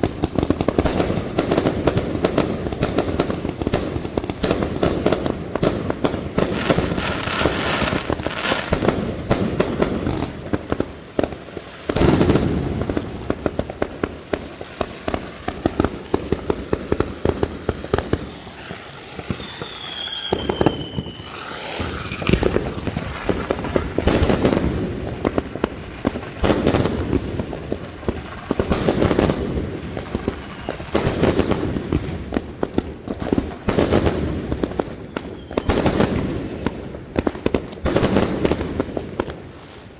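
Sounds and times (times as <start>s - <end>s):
fireworks crackling and popping: 0.0s - 39.9s
heavy firework bangs: 0.0s - 39.9s
firework whistles gliding down: 6.4s - 10.5s, 15.4s - 25.4s, 30.1s - 31.5s, 35.0s - 36.8s.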